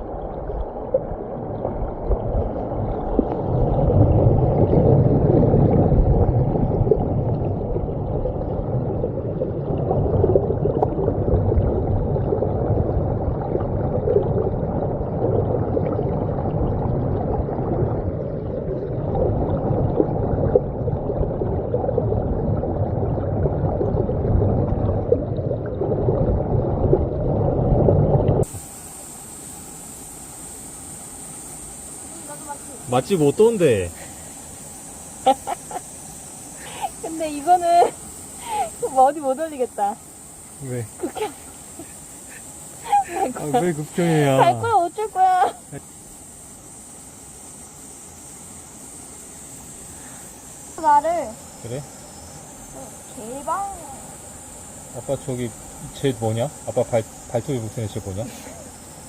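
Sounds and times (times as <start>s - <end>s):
muffled stream water rushing: 0.0s - 30.2s, 30.9s - 46.0s.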